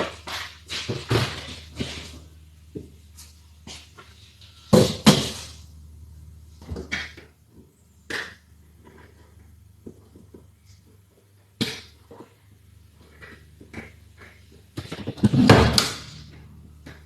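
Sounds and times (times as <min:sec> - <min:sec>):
car parts and tools clattering: 0:00.0 - 0:05.8, 0:13.0 - 0:17.0
faint low hum: 0:00.0 - 0:17.0.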